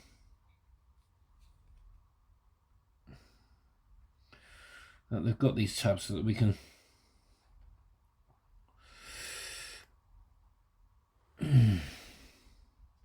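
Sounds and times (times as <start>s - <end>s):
man breathing in: 8.8s - 9.9s, 11.4s - 12.8s
man sighing: 11.4s - 12.4s.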